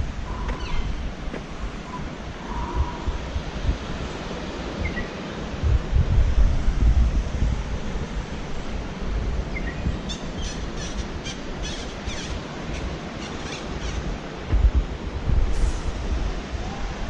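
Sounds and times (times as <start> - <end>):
wind rumbling on microphone: 0.0 - 17.0
outdoor hiss: 10.1 - 17.0.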